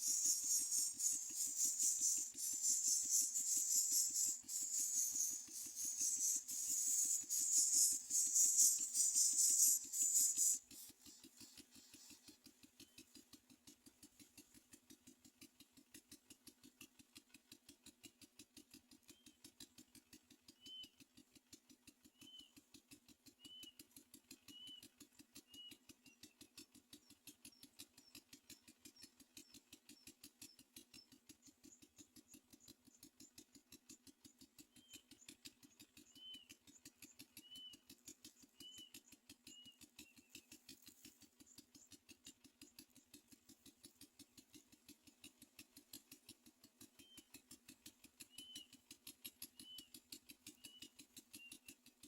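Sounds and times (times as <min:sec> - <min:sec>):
bird short high chirps: 0:00.0 - 0:10.6
fast even pulsing: 0:00.0 - 0:10.9.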